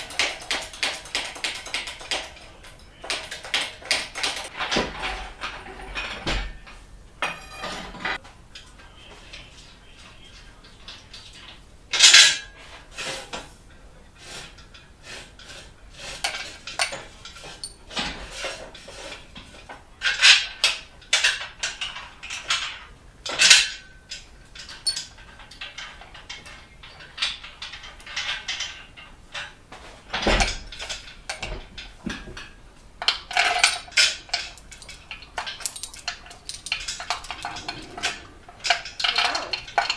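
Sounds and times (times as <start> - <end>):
metal tools clinking: 0.0 - 8.2, 30.1 - 39.9
sharp metal clanks: 4.2 - 8.2, 33.0 - 39.9.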